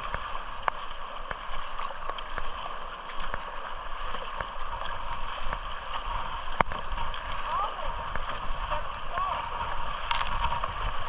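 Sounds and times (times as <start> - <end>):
small drip-like clicks: 0.0 - 11.0
water splashing around kayak: 0.0 - 11.0.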